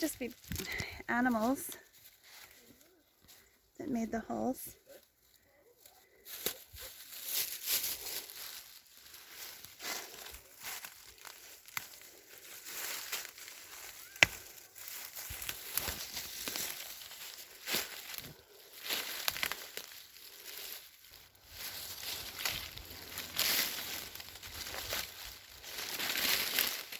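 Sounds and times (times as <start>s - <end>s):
rustling and crinkling: 0.0s - 26.9s
small cracks and clicks: 6.3s - 26.9s.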